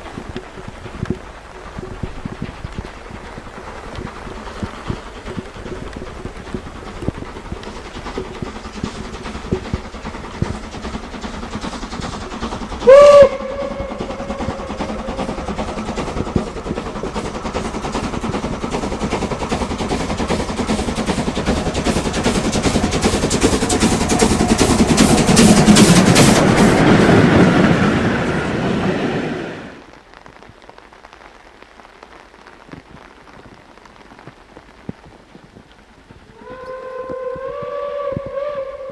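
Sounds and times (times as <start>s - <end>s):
train running gear: 0.0s - 29.8s, 36.3s - 38.9s
steam locomotive exhaust beats: 0.0s - 30.8s, 32.7s - 38.9s
steam locomotive whistle: 12.8s - 15.4s, 36.3s - 38.9s.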